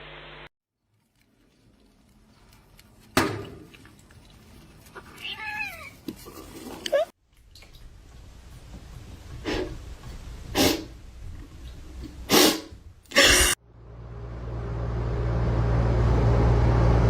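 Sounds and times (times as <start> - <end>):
cat sneezing: 10.6 - 10.9, 12.3 - 13.6
steady low hum: 13.6 - 17.0.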